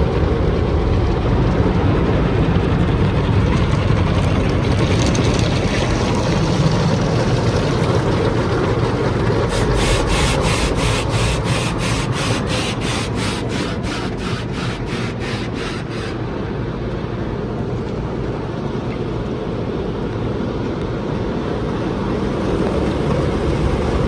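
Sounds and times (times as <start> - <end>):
car wash scrubbing and spraying: 7.1 - 16.4
rhythmic swishing: 9.2 - 16.4.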